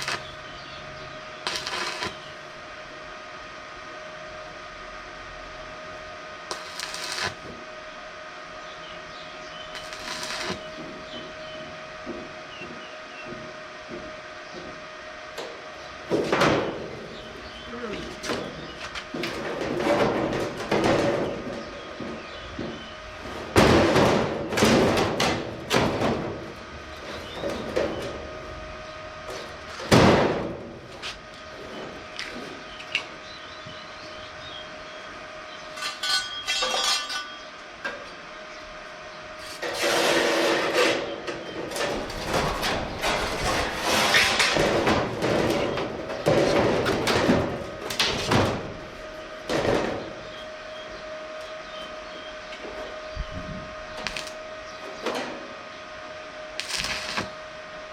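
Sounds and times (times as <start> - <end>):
metal scraping and rattling: 9.8 - 10.9, 18.2 - 28.4, 35.7 - 37.4, 39.5 - 50.2
sheet metal knocks and clanks: 23.5 - 26.5, 41.7 - 48.8.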